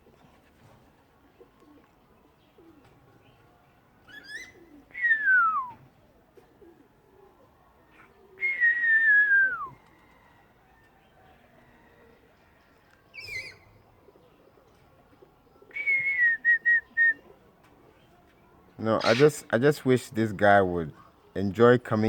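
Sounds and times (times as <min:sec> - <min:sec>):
parrot whistling: 0:19.0 - 0:19.3.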